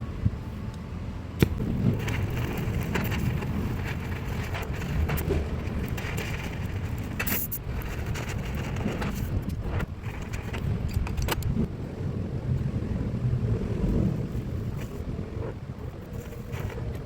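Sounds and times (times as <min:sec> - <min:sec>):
crackles and snaps from weld: 0:01.4 - 0:11.6, 0:16.0 - 0:17.0
welding torch flame rumbling: 0:01.4 - 0:17.0.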